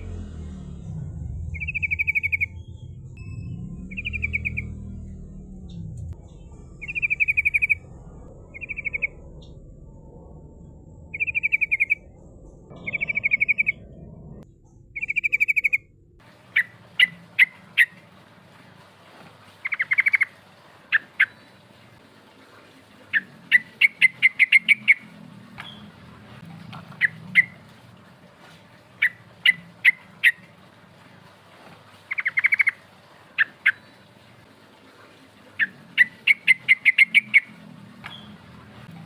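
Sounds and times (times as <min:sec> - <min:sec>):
bird chirps: 0:00.9 - 0:09.8, 0:11.1 - 0:15.9, 0:19.6 - 0:20.3, 0:32.1 - 0:32.8, 0:35.6 - 0:38.4
bird rattling trills: 0:01.6 - 0:02.6, 0:03.8 - 0:05.1, 0:06.8 - 0:07.8, 0:08.5 - 0:09.4, 0:11.1 - 0:12.0, 0:12.7 - 0:13.9, 0:16.4 - 0:18.1, 0:19.6 - 0:21.5, 0:32.0 - 0:34.0.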